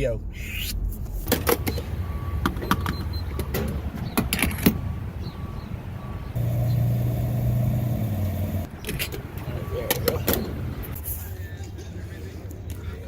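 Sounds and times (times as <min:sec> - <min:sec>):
car engine humming: 0:01.3 - 0:11.1.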